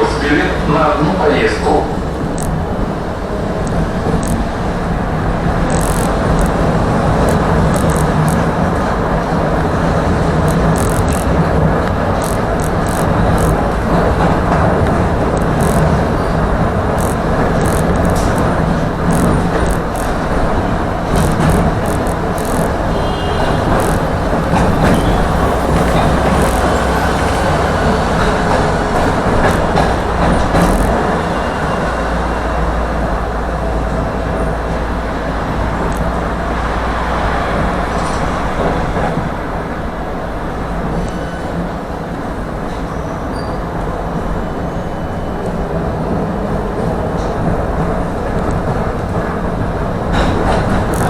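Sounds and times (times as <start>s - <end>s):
tram motor hum: 0.0s - 51.0s
tram wheels rumbling on rails: 0.0s - 51.0s
sharp clicks: 2.3s - 2.6s, 3.6s - 4.5s, 5.6s - 8.6s, 10.3s - 16.2s, 16.9s - 27.4s, 29.0s - 31.0s, 35.9s - 36.1s, 50.2s - 51.0s.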